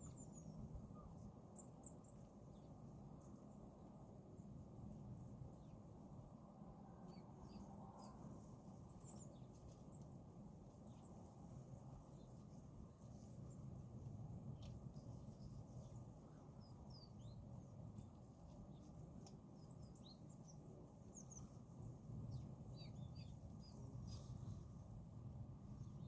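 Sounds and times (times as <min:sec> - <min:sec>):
small birds chirping: 0:00.0 - 0:03.7, 0:07.0 - 0:24.8
low steady background rumble: 0:00.0 - 0:26.0.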